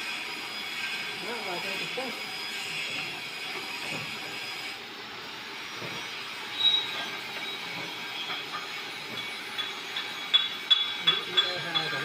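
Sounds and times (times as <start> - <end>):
high squeal: 5.9 - 10.9.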